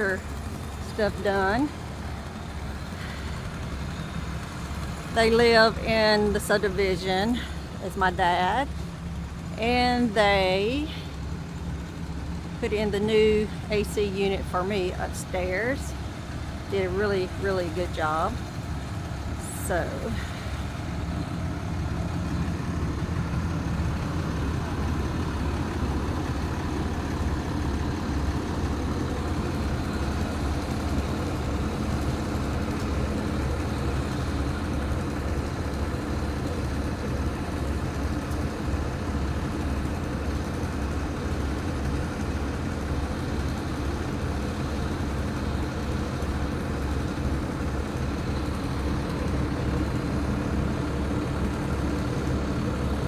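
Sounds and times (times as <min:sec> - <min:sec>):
large engine running steadily: 0:00.0 - 0:53.0.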